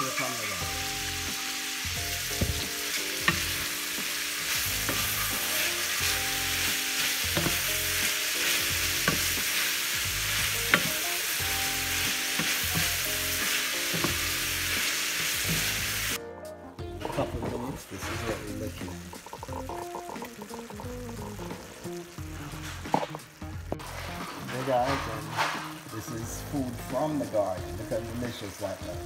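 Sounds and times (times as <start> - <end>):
vegetables sizzling in oil: 0.0 - 16.2, 17.3 - 29.0
wooden spoon knocking on pan: 2.3 - 3.7, 7.3 - 8.0, 8.6 - 11.0, 11.9 - 14.6.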